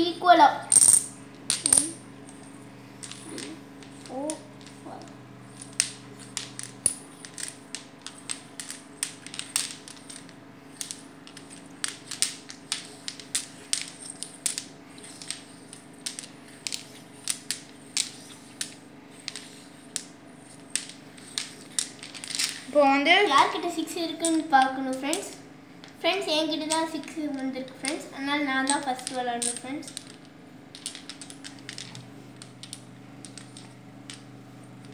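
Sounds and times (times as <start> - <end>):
domino tiles clacking: 0.7 - 22.8, 24.1 - 26.0, 28.6 - 34.9.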